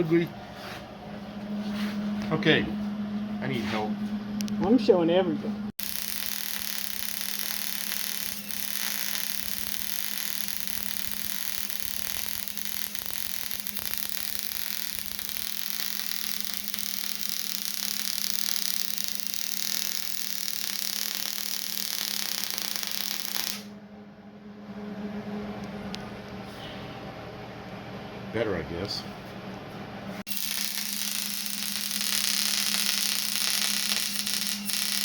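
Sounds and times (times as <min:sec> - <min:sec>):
welder crackling and hissing: 0:05.8 - 0:23.7, 0:30.3 - 0:35.0.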